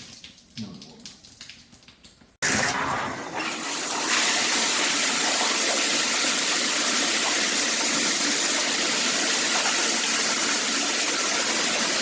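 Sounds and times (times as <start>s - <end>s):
shower water spraying: 2.4s - 12.0s.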